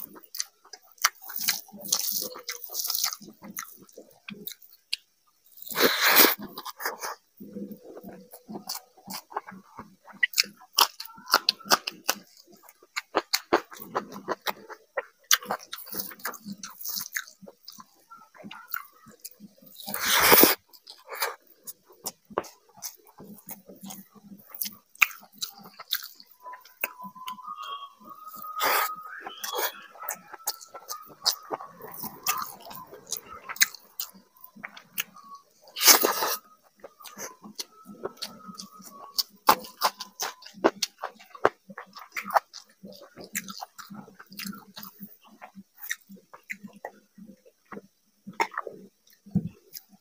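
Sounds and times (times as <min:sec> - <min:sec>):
wet chewing and lip smacking: 0:00.0 - 0:50.0
thin high tone: 0:26.3 - 0:40.2.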